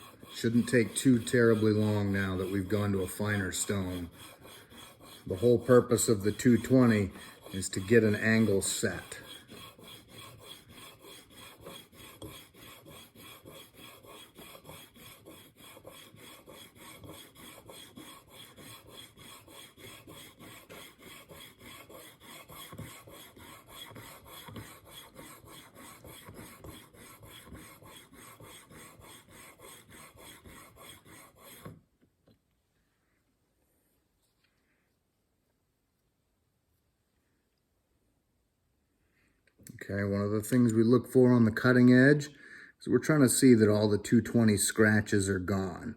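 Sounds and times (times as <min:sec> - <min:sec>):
sharpening plate rasping on steel: 0:00.0 - 0:31.8.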